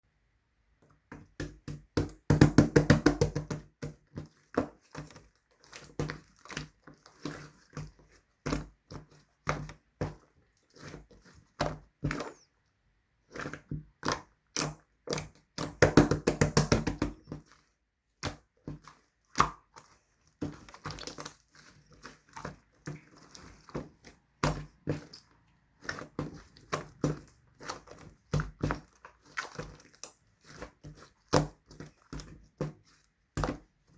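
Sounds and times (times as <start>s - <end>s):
slime squished by hand: 13.2s - 33.9s.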